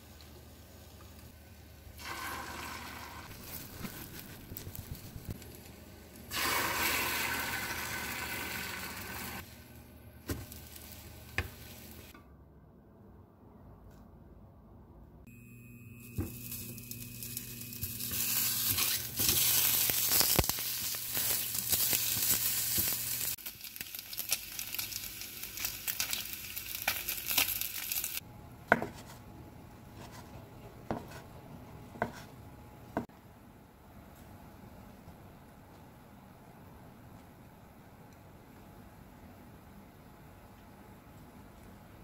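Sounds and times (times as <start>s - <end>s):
meat sizzling in a pan: 16.2s - 28.2s.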